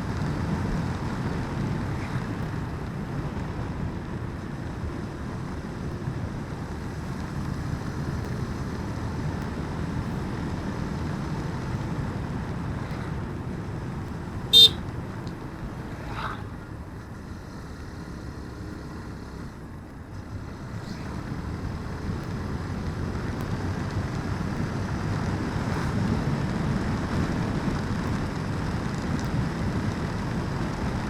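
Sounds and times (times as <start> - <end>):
motorcycle engine: 0.0 - 31.0
road noise: 0.0 - 31.0
horn toot: 14.5 - 14.8.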